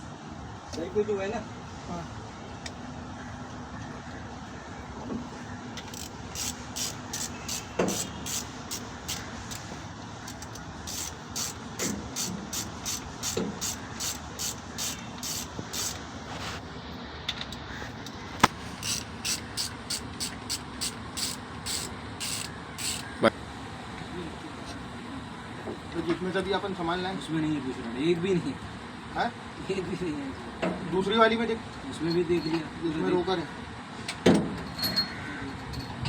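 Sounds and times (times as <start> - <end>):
ratchet wrench clicking: 5.8 - 16.0, 18.7 - 23.2.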